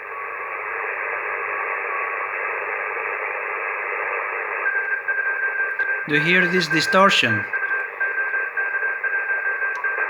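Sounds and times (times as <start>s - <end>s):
faint radio signals: 6.1s - 7.6s.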